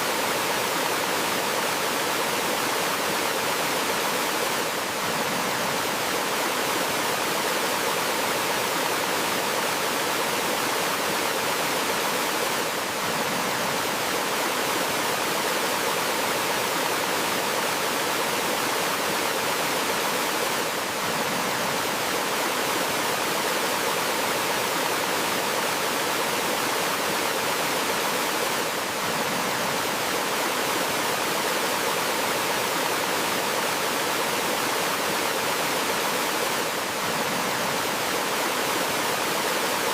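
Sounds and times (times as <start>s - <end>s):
waterfall flowing and splashing: 0.0s - 39.9s.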